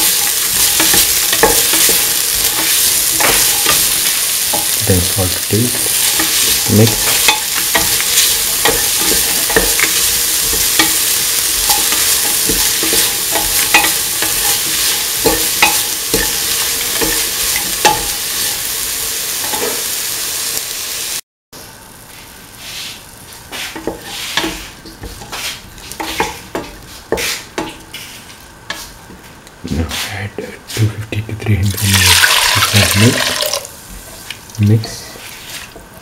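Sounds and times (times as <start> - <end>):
spoon scraping and clacking on pan: 0.0 - 4.9, 5.5 - 20.0, 23.5 - 28.9
vegetables sizzling in a pan: 0.0 - 29.6, 31.6 - 36.0.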